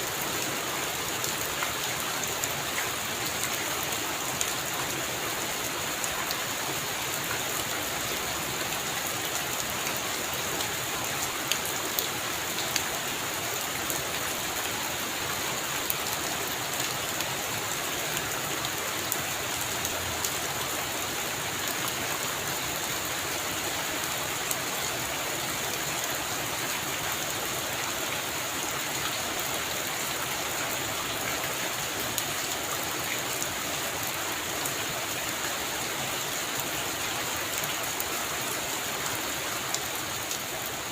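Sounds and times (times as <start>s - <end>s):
heavy rain on a roof: 0.0s - 40.9s.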